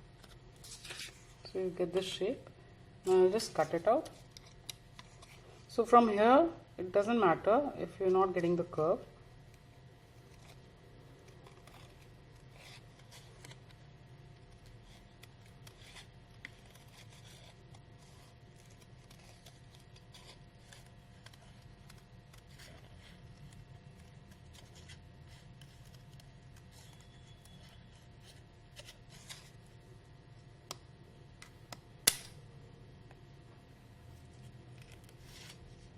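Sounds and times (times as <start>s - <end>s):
low steady hum: 0.0s - 35.9s
paper rustling: 0.2s - 1.5s, 10.1s - 29.7s, 34.2s - 35.9s
scissors snipping paper: 14.5s - 28.0s.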